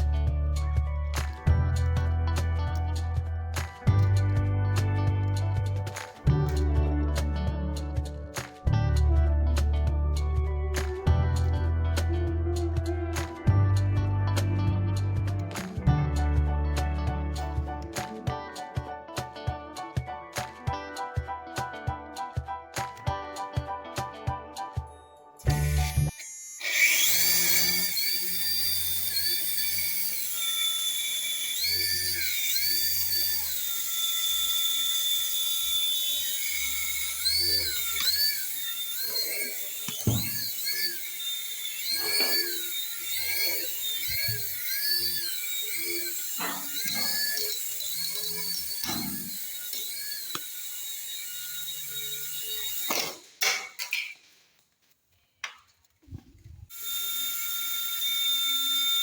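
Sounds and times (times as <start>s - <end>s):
toy helicopter motors whining: 25.4s - 54.2s, 56.7s - 59.0s.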